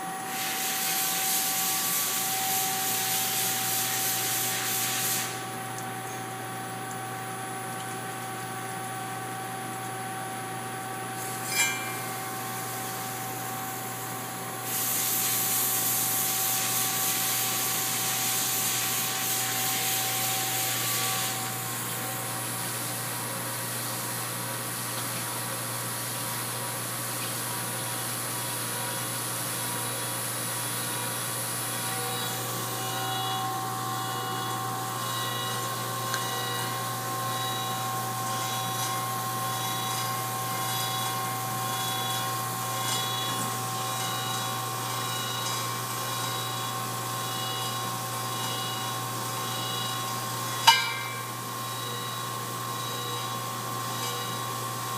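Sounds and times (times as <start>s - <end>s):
grinder running: 31.7s - 54.9s.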